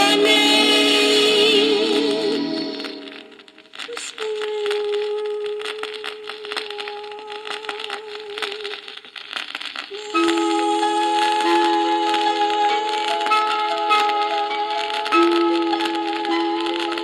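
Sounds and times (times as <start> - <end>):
vinyl crackles and clicks: 0.0 - 17.0
instrumental music with held notes: 10.0 - 17.0.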